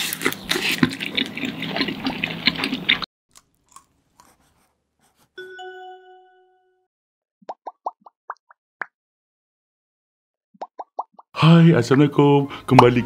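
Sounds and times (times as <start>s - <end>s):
close-miked chewing: 0.0s - 4.6s
chime-like note: 5.4s - 6.9s.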